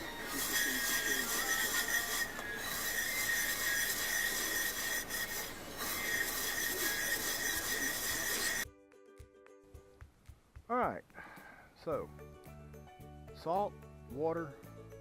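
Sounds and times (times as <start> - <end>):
steel scrubber scouring iron skillet: 0.0 - 8.6.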